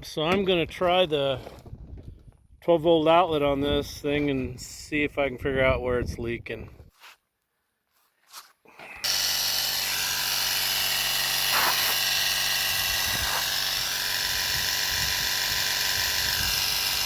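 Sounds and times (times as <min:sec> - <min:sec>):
air compressor buzzing: 0:08.9 - 0:17.0.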